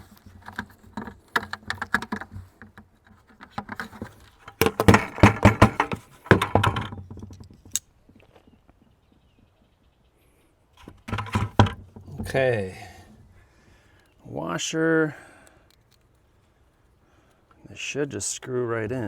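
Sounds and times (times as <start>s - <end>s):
plastic bucket scraping and clicking: 0.0s - 7.8s, 10.8s - 12.6s.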